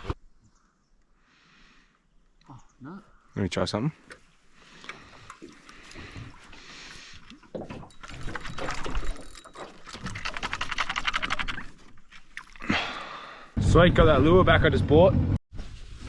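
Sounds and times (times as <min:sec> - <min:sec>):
water around a boat: 0:04.0 - 0:13.6
fishing reel ticking: 0:08.0 - 0:11.6.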